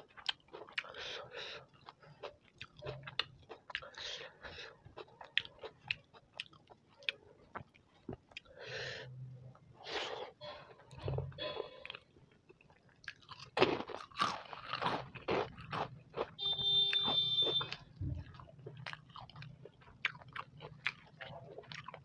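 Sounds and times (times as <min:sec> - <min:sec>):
person chewing: 0:00.0 - 0:22.0
electronic buzzer tone: 0:16.4 - 0:17.8.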